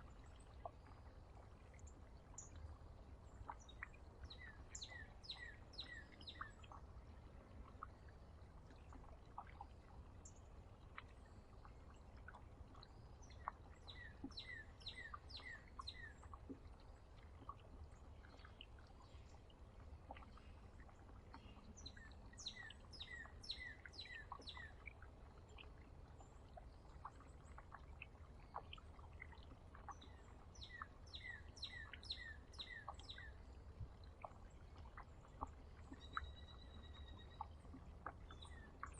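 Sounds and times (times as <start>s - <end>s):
songbird chirping: 0.2s - 38.9s.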